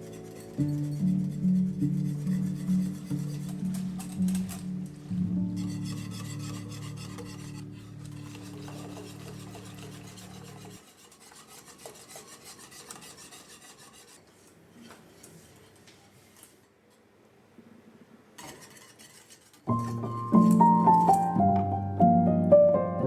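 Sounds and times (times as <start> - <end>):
low sustained music: 0.0 - 10.7, 19.7 - 23.0
rhythmic rasping and rubbing: 0.0 - 14.2, 18.5 - 21.4.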